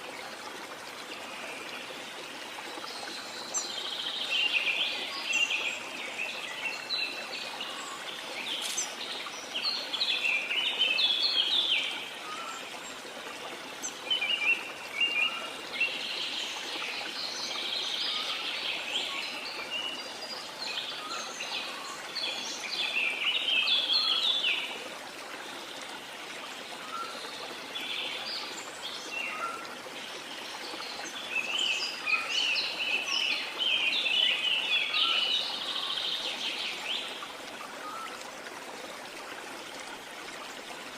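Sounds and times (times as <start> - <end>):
water rushing: 0.0 - 40.9
birds chirping and calling: 8.4 - 9.0.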